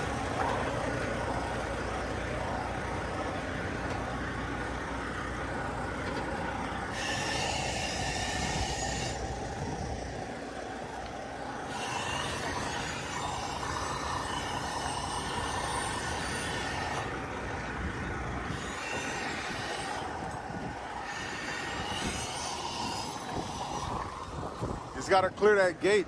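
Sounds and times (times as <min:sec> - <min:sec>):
semi truck engine running: 0:00.0 - 0:26.0
faint high squeal: 0:06.9 - 0:10.0, 0:11.6 - 0:17.2, 0:17.9 - 0:25.1.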